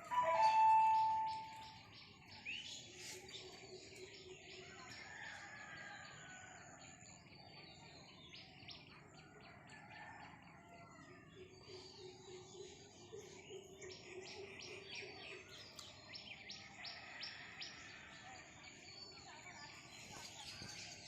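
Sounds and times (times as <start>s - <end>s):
upward-sweeping bird call: 0.0s - 1.8s
small birds chirping: 11.2s - 21.0s.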